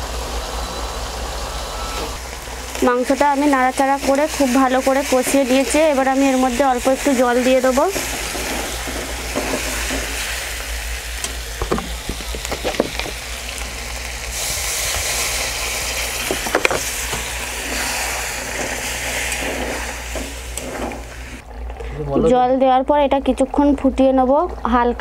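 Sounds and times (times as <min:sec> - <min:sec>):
chicken sizzling in a pan: 0:02.2 - 0:21.4
water poured into hot pan: 0:04.7 - 0:21.4.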